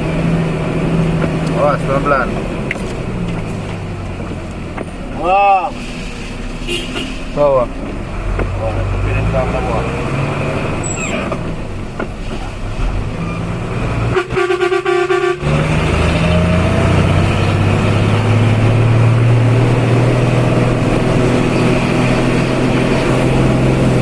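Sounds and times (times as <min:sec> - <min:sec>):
truck engine pulling uphill: 0:00.0 - 0:24.0
truck horn: 0:06.4 - 0:07.4, 0:14.0 - 0:16.0.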